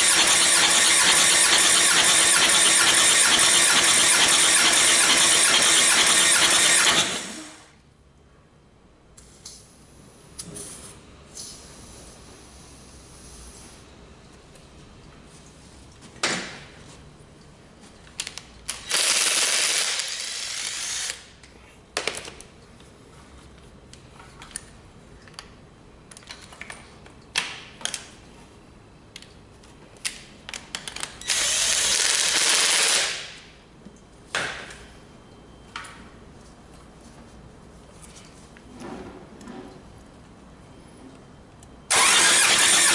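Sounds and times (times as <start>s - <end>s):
air-driven tool bursts: 0.0s - 7.7s, 41.9s - 42.9s.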